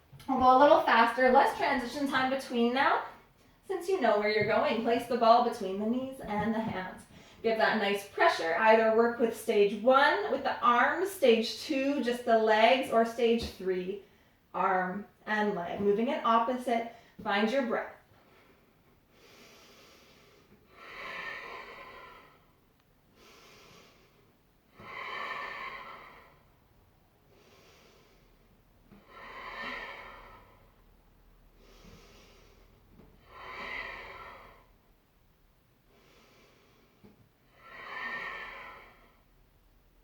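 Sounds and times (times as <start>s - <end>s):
woman breathing deeply: 7.1s - 7.4s, 18.2s - 35.1s, 35.8s - 39.5s.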